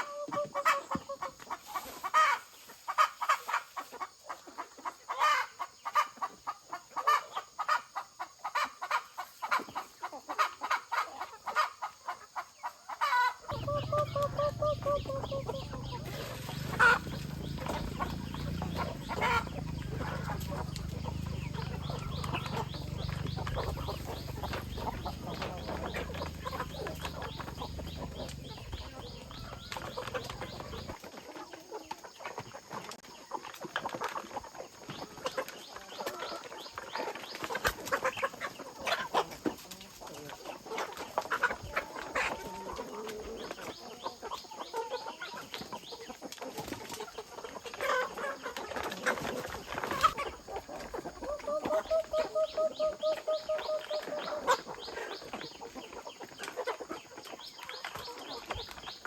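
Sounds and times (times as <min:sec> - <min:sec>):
chickens clucking: 0:00.0 - 0:59.0
steady low rumble: 0:13.5 - 0:30.9.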